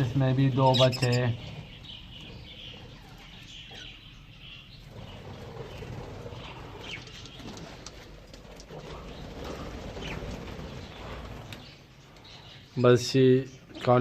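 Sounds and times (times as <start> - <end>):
budgerigars chirping: 0.0 - 7.4.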